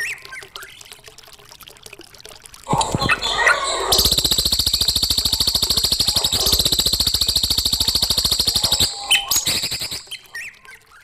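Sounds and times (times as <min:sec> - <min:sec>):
bird chirps: 0:03.0 - 0:10.7
songbird rattling trill: 0:03.9 - 0:10.4.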